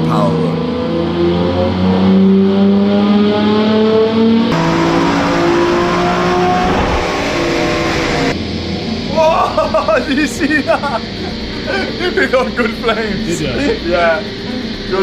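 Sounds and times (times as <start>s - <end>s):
car engine revving at full throttle: 0.0s - 9.1s.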